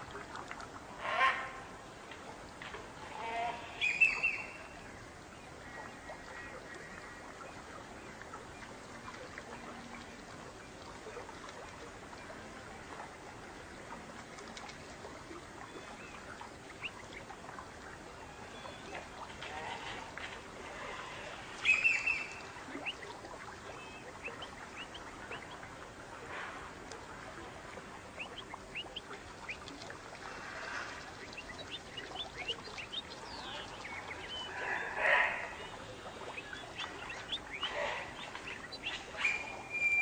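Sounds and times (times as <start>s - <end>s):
birds chirping: 3.8s - 4.9s, 21.6s - 25.8s, 28.0s - 29.9s, 30.5s - 40.0s.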